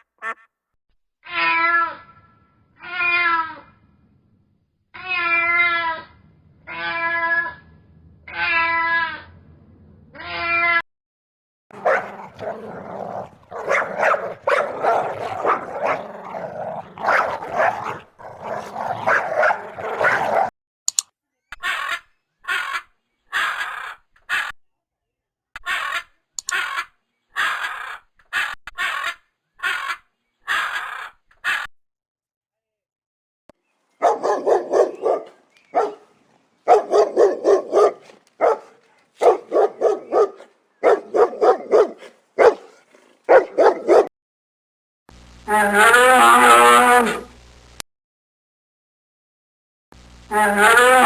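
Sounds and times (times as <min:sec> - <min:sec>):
dog barking: 0:00.0 - 0:00.4, 0:11.7 - 0:20.5, 0:34.0 - 0:44.1
dogs whining and yipping: 0:11.8 - 0:20.5, 0:34.0 - 0:36.1, 0:36.7 - 0:44.1.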